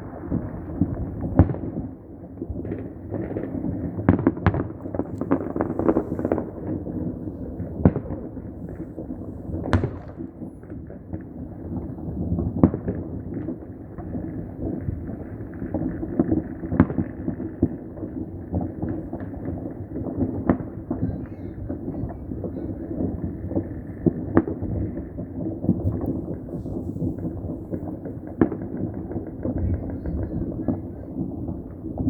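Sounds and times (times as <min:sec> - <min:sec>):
fireworks popping and banging: 0:00.0 - 0:32.0
loud single firework bangs: 0:00.0 - 0:32.0.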